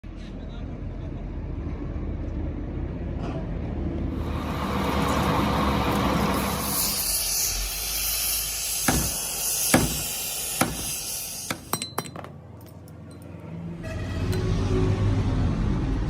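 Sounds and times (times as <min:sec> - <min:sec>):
metal striking metal: 0:08.8 - 0:12.2.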